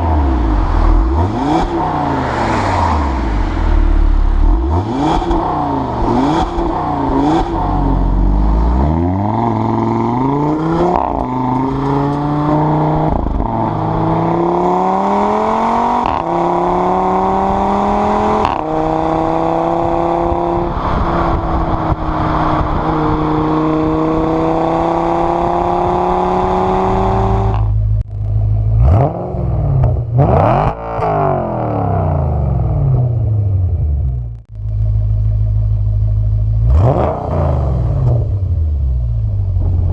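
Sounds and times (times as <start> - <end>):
car accelerating through gears: 0.0 - 8.1
car engine revving: 0.0 - 39.9
engine idling: 34.5 - 36.9.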